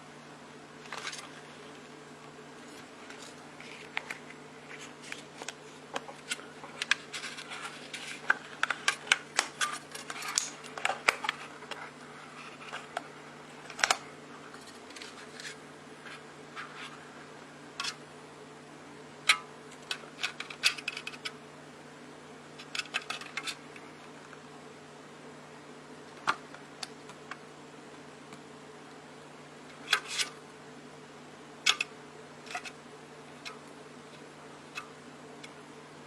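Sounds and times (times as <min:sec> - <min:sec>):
steady low hum: 0:00.0 - 0:36.0
clicks and scrapes of small objects: 0:02.6 - 0:13.0, 0:13.7 - 0:17.0, 0:19.7 - 0:21.4, 0:22.6 - 0:23.6, 0:29.8 - 0:30.4, 0:31.7 - 0:32.8.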